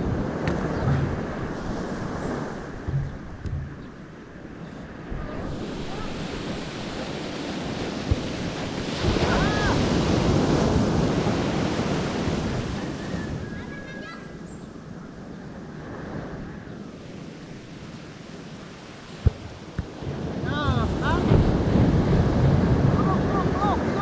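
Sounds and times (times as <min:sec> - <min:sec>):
sea waves washing: 0:00.0 - 0:24.0
wind buffeting microphone: 0:00.0 - 0:24.0
sharp knock: 0:02.8 - 0:03.9.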